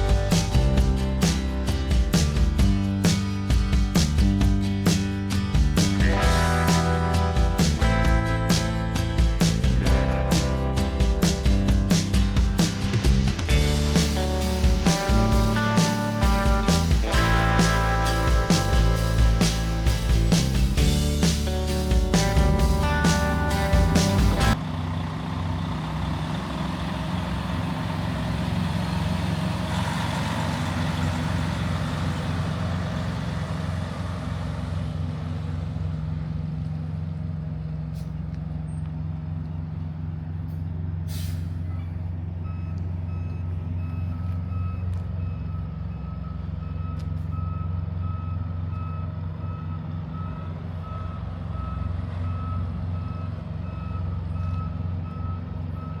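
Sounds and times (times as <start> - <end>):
diesel truck engine idling: 0.0 - 56.0
reversing alarm beeping: 42.4 - 56.0.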